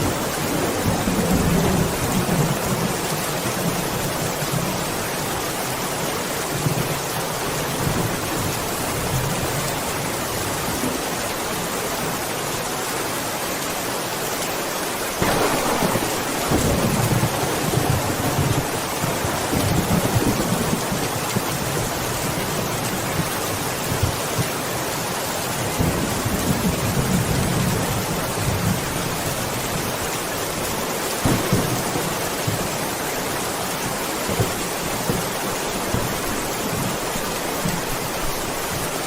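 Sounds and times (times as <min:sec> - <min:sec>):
heavy rain: 0:00.0 - 0:39.0
loud thunderclap: 0:15.2 - 0:21.5, 0:31.2 - 0:32.8
thunder rumbling: 0:15.2 - 0:23.3, 0:31.2 - 0:37.8.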